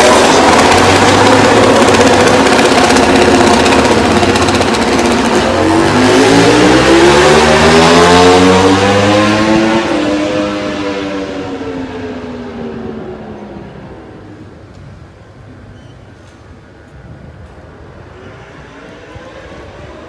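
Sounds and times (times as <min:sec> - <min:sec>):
racing motorcycle accelerating past: 0:00.0 - 0:14.2.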